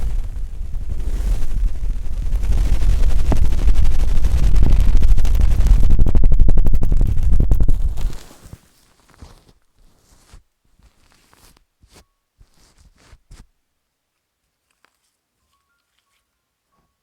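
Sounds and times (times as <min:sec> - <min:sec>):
fast crackling clicks: 0:00.0 - 0:08.3
fingers rubbing on microphone: 0:00.0 - 0:13.5.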